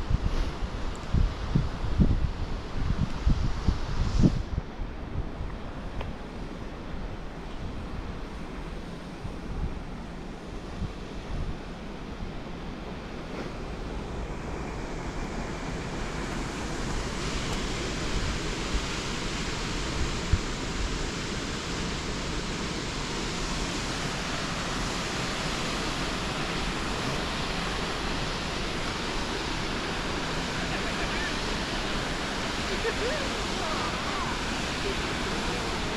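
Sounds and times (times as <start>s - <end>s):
wind buffeting microphone: 0.0s - 20.9s, 24.4s - 30.5s.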